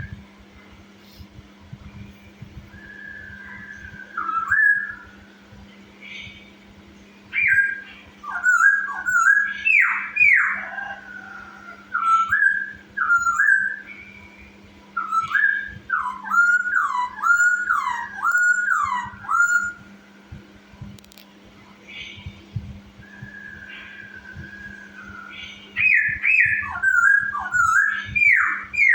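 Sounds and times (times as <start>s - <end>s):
steady low hum: 0.0s - 28.9s
bird singing whistled phrases: 2.7s - 5.2s, 7.3s - 19.9s, 23.0s - 28.9s.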